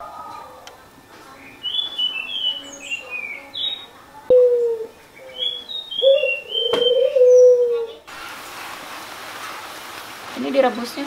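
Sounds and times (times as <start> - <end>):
small birds chirping: 1.2 - 8.1.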